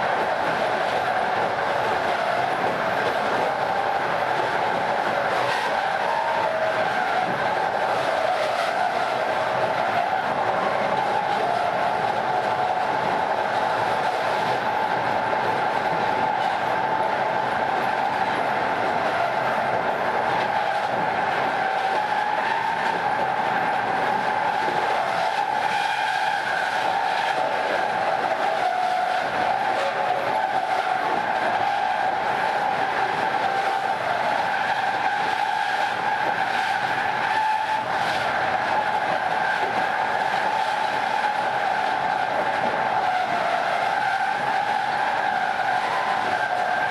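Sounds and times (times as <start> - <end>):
train running noise: 0.0 - 46.9
train wheels whining on rail: 0.0 - 46.9.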